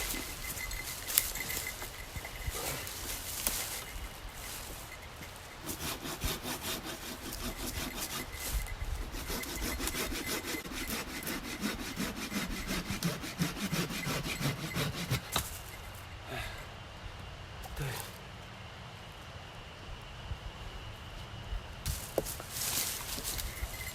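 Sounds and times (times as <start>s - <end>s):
hand saw cutting wood: 5.3s - 15.6s.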